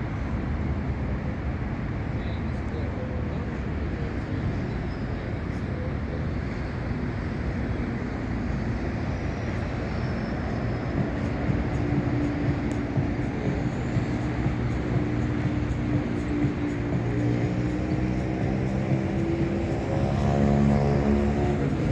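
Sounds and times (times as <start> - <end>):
jet engines roaring: 0.0 - 21.9
multi-tone hum: 0.0 - 21.9.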